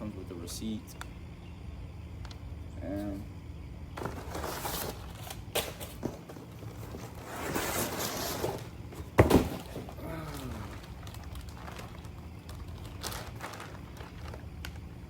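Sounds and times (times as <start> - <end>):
packaging rustling and scraping: 4.0 - 15.0.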